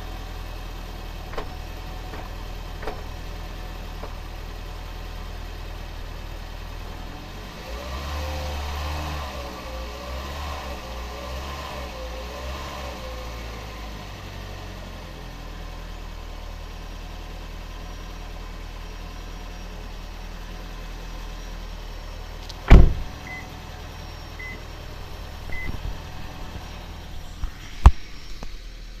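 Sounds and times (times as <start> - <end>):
loud thump: 22.6 - 23.2
low hum: 22.6 - 29.0
short high beeps: 25.5 - 25.8.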